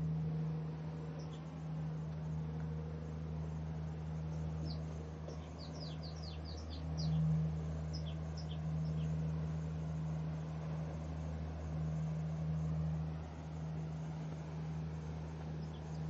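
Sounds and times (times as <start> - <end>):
low hum: 0.0 - 16.0
small birds chirping: 0.7 - 16.0.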